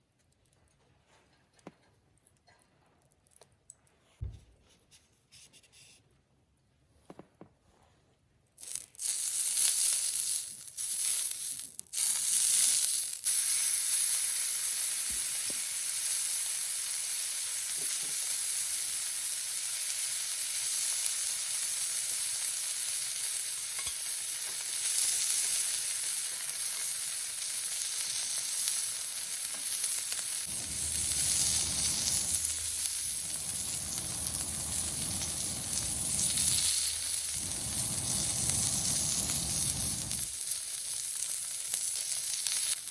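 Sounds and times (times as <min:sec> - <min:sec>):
meat sizzling on griddle: 0:08.6 - 0:42.9.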